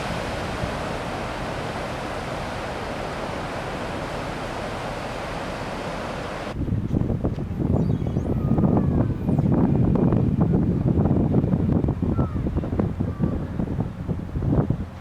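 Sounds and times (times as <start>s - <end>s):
steady rushing noise: 0.0s - 7.7s
wind rumbling on microphone: 0.0s - 15.0s.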